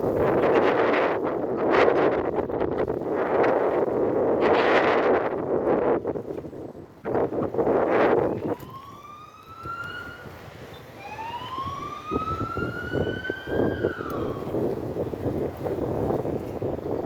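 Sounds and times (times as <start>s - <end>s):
wind buffeting microphone: 0.0s - 17.0s
siren wailing: 7.9s - 15.0s.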